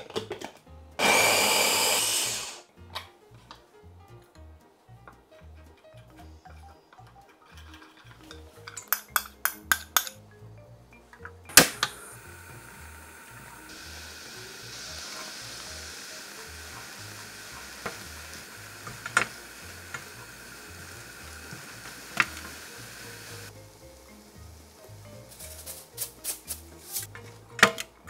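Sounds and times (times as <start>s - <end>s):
utensil tapping pan: 7.2s - 10.2s
food sizzling in frying pan: 11.6s - 27.1s.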